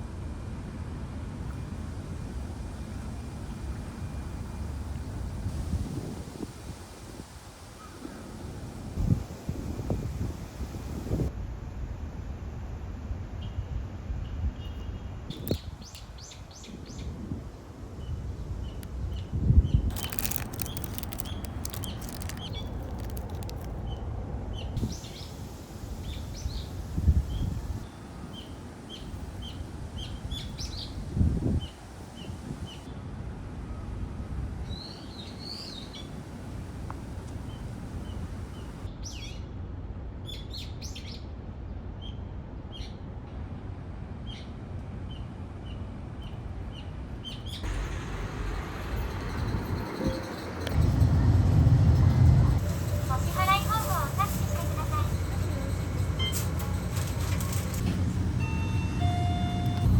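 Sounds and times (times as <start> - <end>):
small birds chirping: 18.6 - 27.8
low outdoor rumble: 47.0 - 59.0, 59.6 - 59.9.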